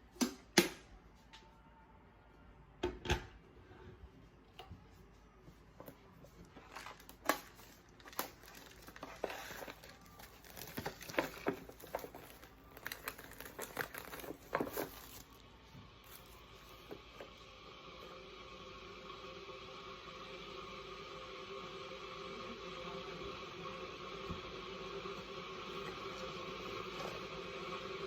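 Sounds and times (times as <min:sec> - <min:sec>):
packaging crinkling and tearing: 0:06.6 - 0:15.5.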